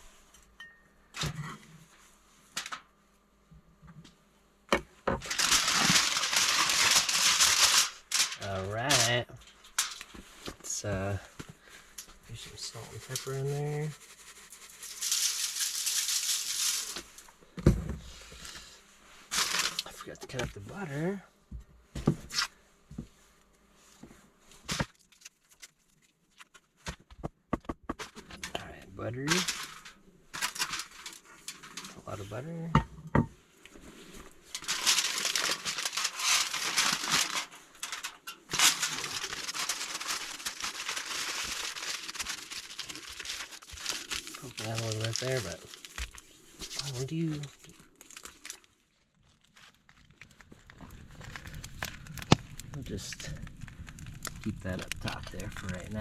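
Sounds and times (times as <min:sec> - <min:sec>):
shaker grains rattling: 0:12.3 - 0:17.3.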